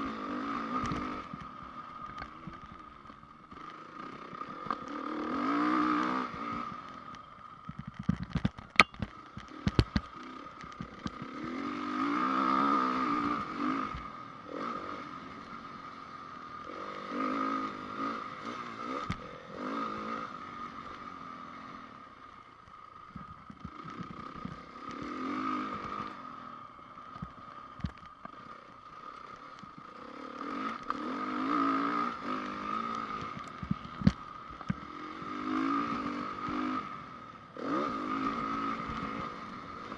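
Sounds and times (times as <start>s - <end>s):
motocross engine revving: 3.6s - 6.8s, 9.5s - 15.7s, 16.6s - 21.1s, 23.6s - 26.3s, 29.9s - 39.9s
sharp knocks and clatter: 7.7s - 10.1s.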